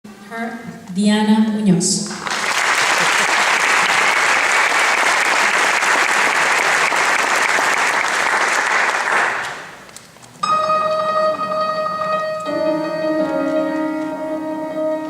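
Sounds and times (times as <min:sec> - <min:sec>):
audience applauding: 0:02.0 - 0:09.9
piano playing: 0:10.4 - 0:15.0.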